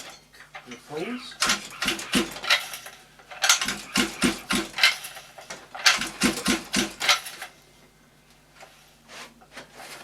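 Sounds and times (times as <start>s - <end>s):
engine pull-starter turning over: 1.4s - 7.5s.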